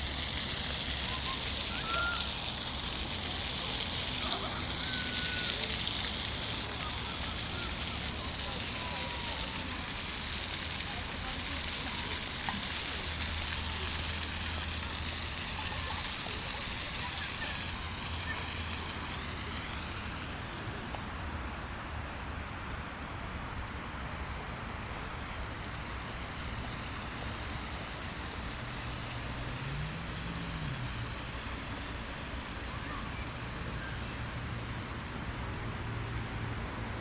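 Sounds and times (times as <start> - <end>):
continuous rushing noise: 0.0 - 37.0
road traffic hum: 0.0 - 37.0
engine rising in pitch: 28.9 - 34.7.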